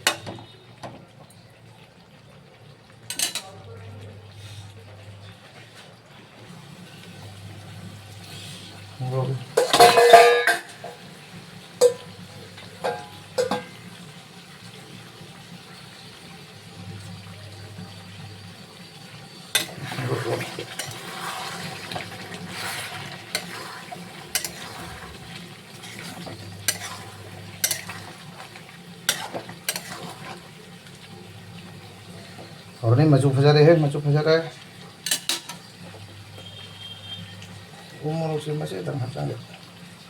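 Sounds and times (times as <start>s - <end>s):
curry sizzling in a pan: 0.0s - 40.0s.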